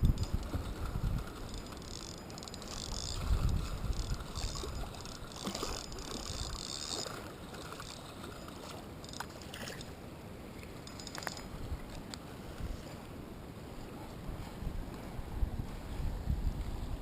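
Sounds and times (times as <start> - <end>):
wind buffeting microphone: 0.0 - 7.0, 14.2 - 17.0.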